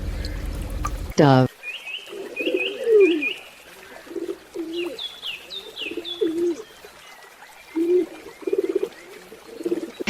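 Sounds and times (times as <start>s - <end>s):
small birds chirping: 0.0s - 10.0s
doves cooing: 2.0s - 6.7s, 7.7s - 10.0s.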